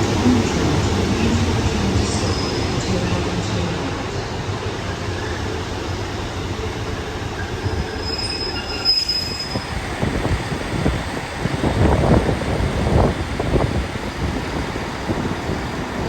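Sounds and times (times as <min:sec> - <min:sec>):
train rumbling: 0:00.0 - 0:16.0
high-pitched wheel squeal: 0:07.6 - 0:09.7.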